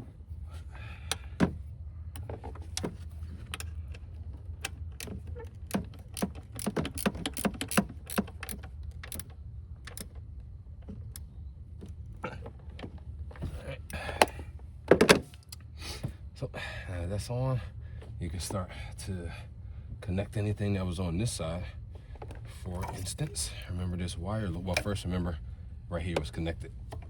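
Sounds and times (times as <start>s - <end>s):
metallic clicks of hand tools: 5.7s - 9.3s.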